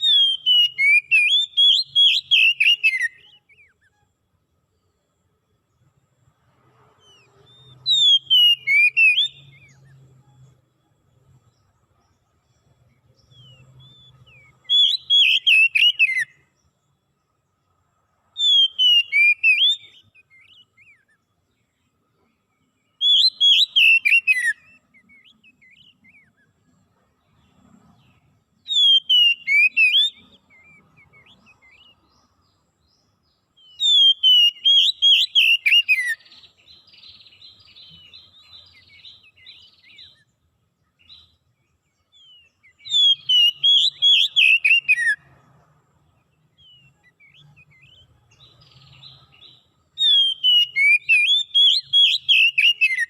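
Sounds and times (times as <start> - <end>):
songbird whistling falling notes: 0.0 - 3.9, 7.5 - 9.8, 13.3 - 16.4, 18.4 - 21.2, 23.0 - 26.4, 28.7 - 31.9, 33.6 - 36.3, 42.2 - 45.2, 50.0 - 53.0.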